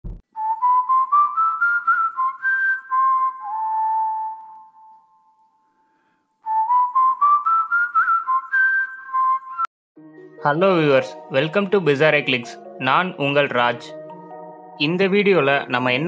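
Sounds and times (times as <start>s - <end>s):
whistled tune: 0.3s - 5.6s, 6.4s - 9.7s.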